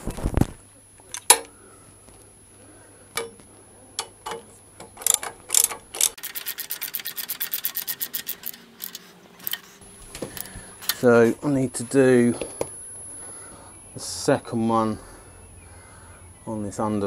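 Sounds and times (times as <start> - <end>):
socket ratchet clicking: 5.0 - 9.6.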